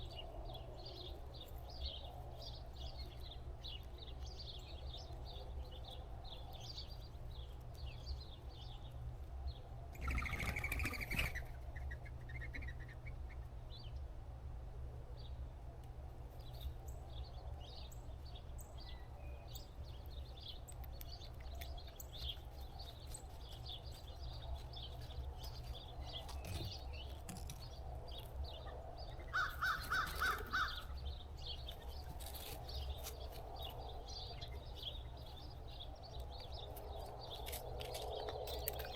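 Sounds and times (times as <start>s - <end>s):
small birds chirping: 0.0s - 14.1s, 15.2s - 38.9s
crows cawing: 29.3s - 31.0s.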